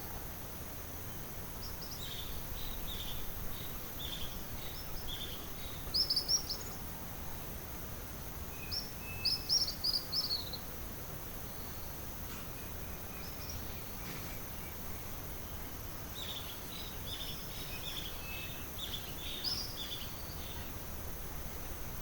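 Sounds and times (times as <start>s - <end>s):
high insect drone: 0.0s - 22.0s
bird chirping: 1.6s - 6.8s, 8.5s - 10.7s, 12.6s - 20.8s.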